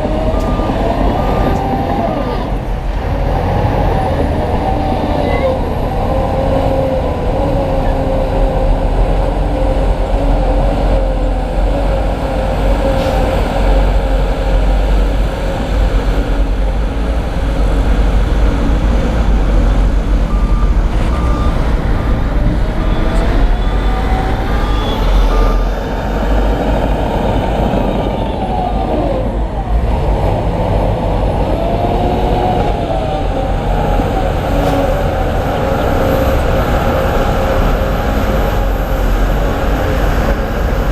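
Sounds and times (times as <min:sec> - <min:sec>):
heavy diesel machinery engine: 0:00.0 - 0:40.9
reversing alarm beeping: 0:00.1 - 0:02.2, 0:20.3 - 0:26.4.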